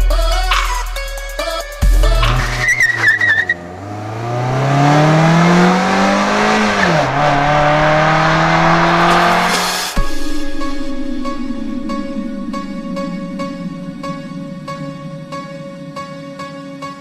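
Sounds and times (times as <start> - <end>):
tires squealing: 1.4 - 10.0
sports car accelerating: 1.4 - 17.0.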